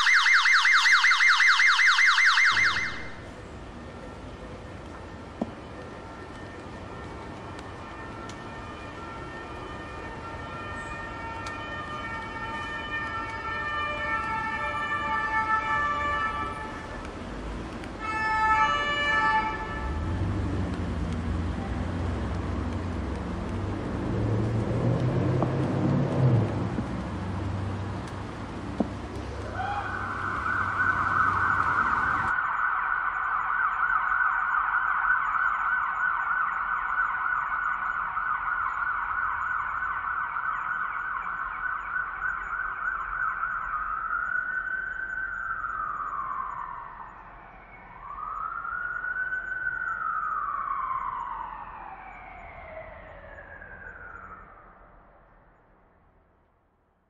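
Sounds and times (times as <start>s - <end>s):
street traffic rumbling: 0.0s - 32.4s
emergency vehicle siren: 0.0s - 56.5s.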